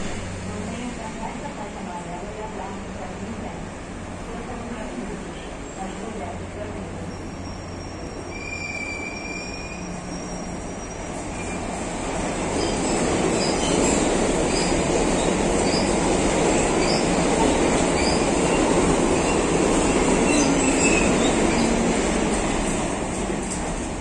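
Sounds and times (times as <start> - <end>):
train wheels rumbling on rails: 0.0 - 24.0
high wheel squeaks: 7.1 - 11.7, 20.2 - 21.7.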